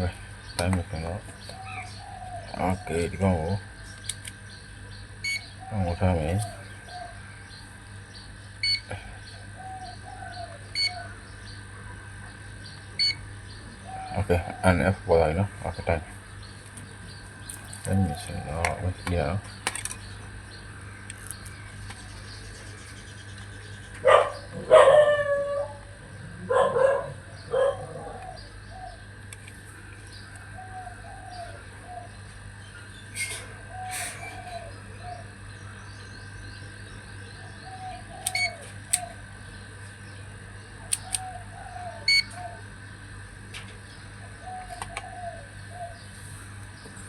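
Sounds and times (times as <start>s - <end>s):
steady low hum: 0.0s - 47.0s
dog barking: 24.0s - 25.7s, 26.5s - 28.2s
sharp clicks: 38.2s - 39.1s, 40.9s - 41.3s.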